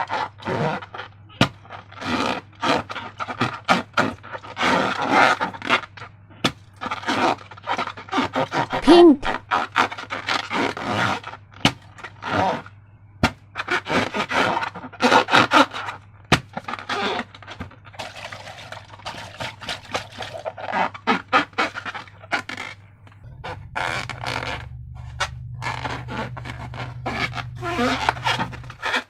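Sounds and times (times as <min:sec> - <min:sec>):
slime squelching by hand: 0:06.8 - 0:10.0.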